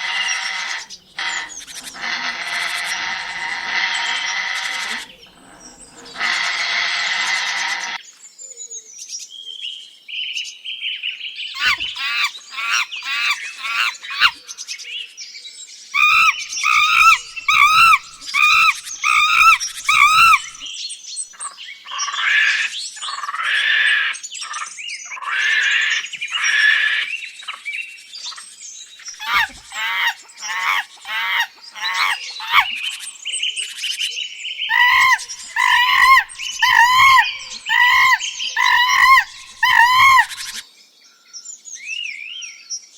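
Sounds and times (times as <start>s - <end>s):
birds calling and chirping: 0.0s - 8.0s, 11.6s - 14.6s, 16.0s - 20.7s, 29.0s - 33.5s, 34.7s - 40.6s.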